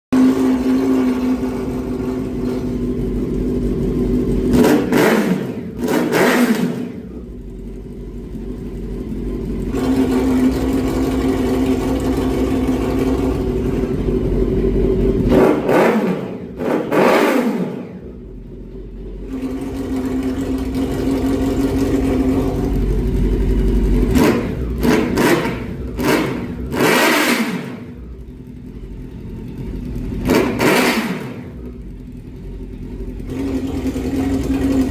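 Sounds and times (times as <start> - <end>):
motorcycle engine idling and revving: 0.1 - 34.9.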